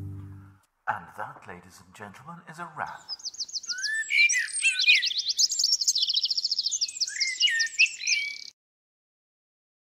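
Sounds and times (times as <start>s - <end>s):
birds chirping and trilling: 2.6s - 8.6s.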